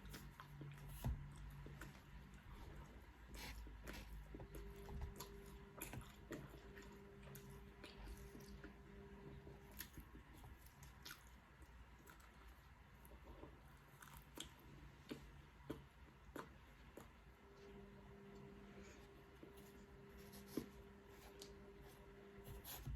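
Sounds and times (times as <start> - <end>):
person chewing food: 0.0 - 17.4
faint steady hum: 0.0 - 22.9.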